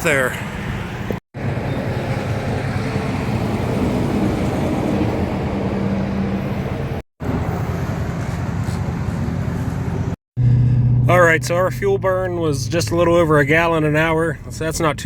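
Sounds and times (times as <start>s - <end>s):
fuel pump hum: 0.4s - 11.4s.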